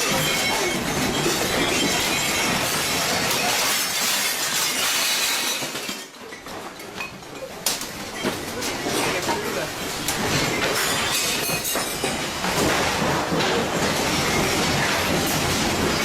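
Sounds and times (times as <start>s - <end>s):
glass rattling: 0.0s - 6.1s
building rumbling and rattling: 7.8s - 16.0s.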